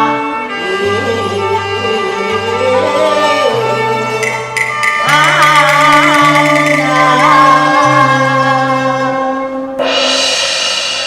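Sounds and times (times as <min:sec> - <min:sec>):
opera music melody: 0:00.0 - 0:10.2
high melody with vibrato: 0:00.5 - 0:09.1
sharp percussive strokes: 0:04.1 - 0:08.2, 0:09.8 - 0:11.0.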